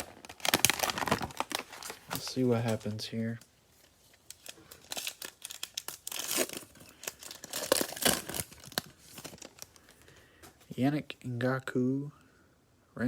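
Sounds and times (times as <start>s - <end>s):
cellophane wrapper crinkling: 0.0s - 10.1s.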